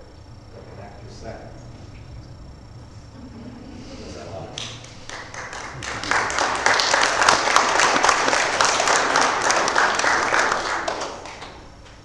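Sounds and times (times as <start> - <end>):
crowd applauding: 4.6 - 11.7.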